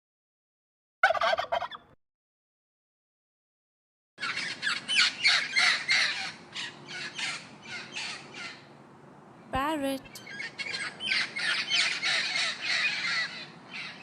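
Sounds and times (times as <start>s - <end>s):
turkey gobbling: 1.0s - 2.0s
bird squawking calls: 4.2s - 8.7s, 10.2s - 14.0s.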